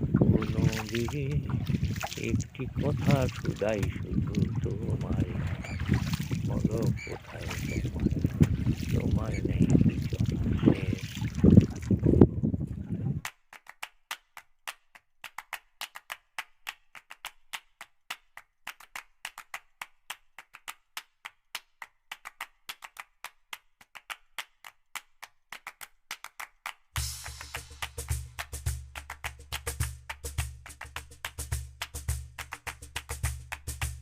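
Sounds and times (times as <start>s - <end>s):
loud percussive music: 27.0s - 34.0s.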